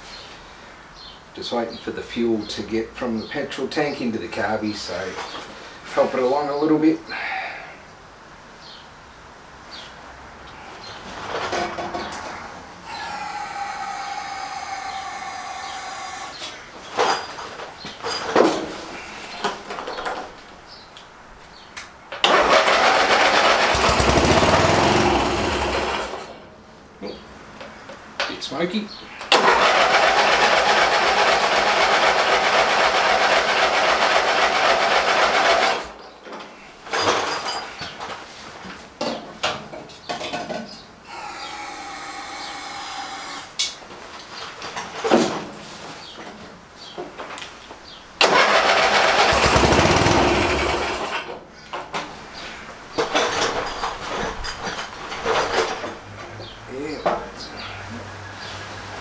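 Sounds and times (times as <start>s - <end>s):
electric starter cranking engine: 12.8s - 17.1s, 22.2s - 26.5s, 29.3s - 35.9s, 41.1s - 43.7s, 48.2s - 51.4s.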